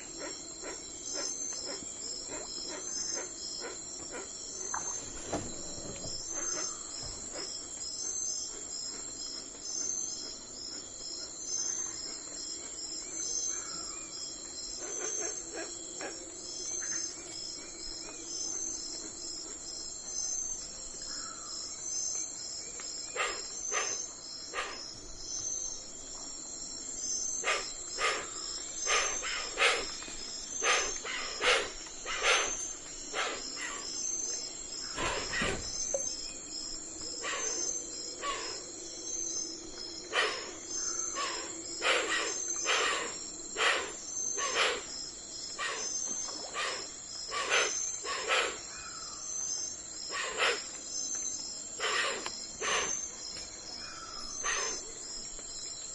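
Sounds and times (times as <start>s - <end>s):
crickets chirping: 0.0s - 55.9s.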